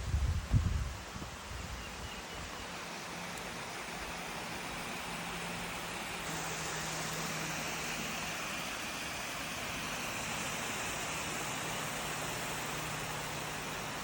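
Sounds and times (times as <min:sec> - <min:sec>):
high hiss: 0:00.0 - 0:14.0
steady rushing noise: 0:00.0 - 0:14.0.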